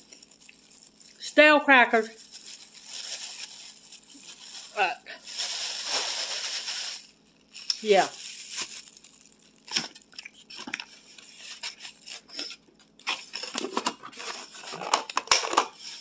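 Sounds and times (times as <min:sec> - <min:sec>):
chewing crackers crunching: 0:00.0 - 0:01.2, 0:07.5 - 0:10.7.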